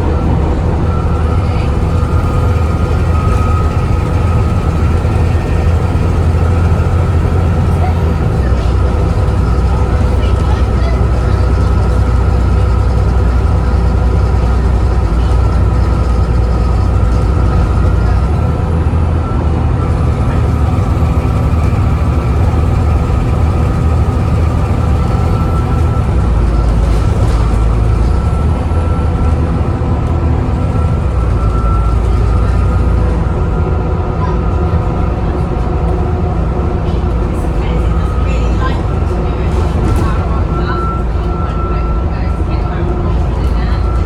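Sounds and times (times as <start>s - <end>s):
bus diesel engine: 0.0s - 44.0s.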